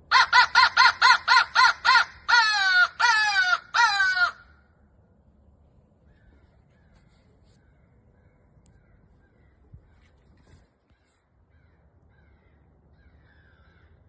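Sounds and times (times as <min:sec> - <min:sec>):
distant crows cawing: 0:00.0 - 0:04.8, 0:06.0 - 0:14.0
crow call: 0:00.1 - 0:04.6, 0:10.9 - 0:14.0.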